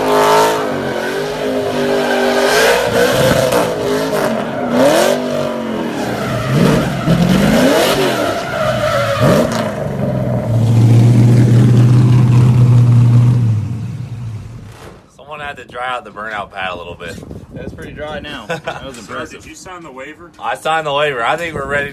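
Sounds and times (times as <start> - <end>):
truck engine revving: 0.0 - 15.0
tires screeching on pavement: 0.0 - 15.1.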